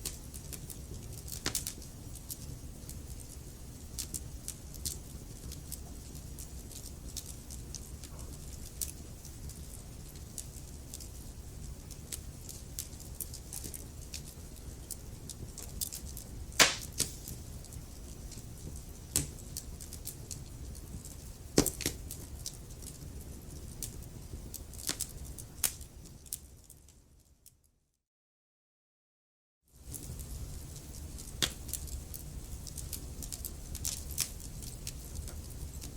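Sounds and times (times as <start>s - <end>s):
low rumble of flames: 0.0s - 27.1s, 29.8s - 35.9s
wood fire crackling: 0.0s - 27.2s, 29.8s - 35.9s
sharp pops and snaps of fire: 0.0s - 27.6s, 29.8s - 35.9s.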